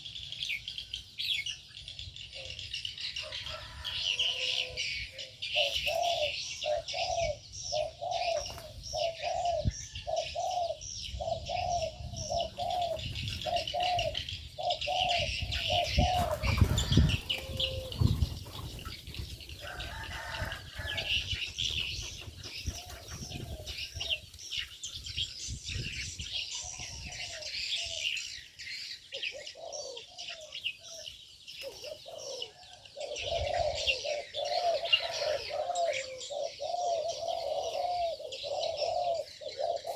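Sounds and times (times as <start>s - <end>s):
small birds chirping: 0.0s - 39.9s
dove cooing: 2.3s - 24.3s, 29.1s - 31.0s, 31.6s - 39.9s.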